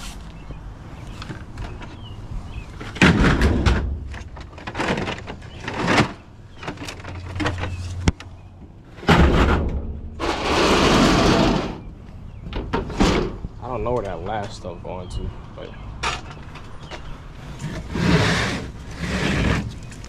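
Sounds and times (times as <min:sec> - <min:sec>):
truck doors and cargo banging: 0:01.2 - 0:13.6.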